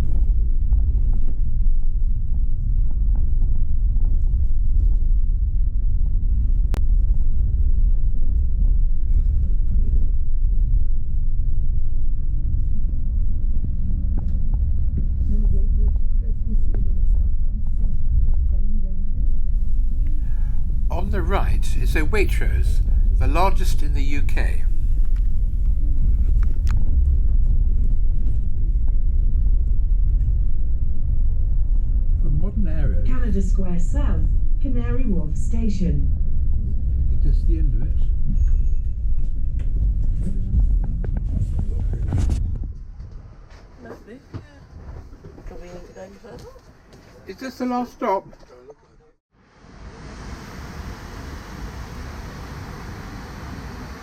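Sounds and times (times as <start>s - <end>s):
bus rumbling in motion: 19.6s - 26.8s, 49.5s - 54.0s.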